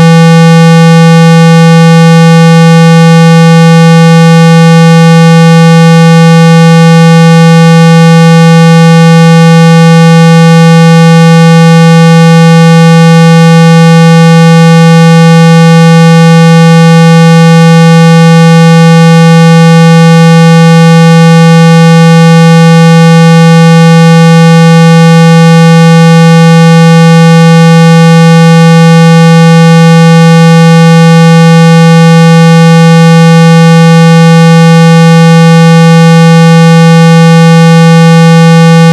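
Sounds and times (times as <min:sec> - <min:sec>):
low buzzy test tone: 0:00.0 - 0:38.9.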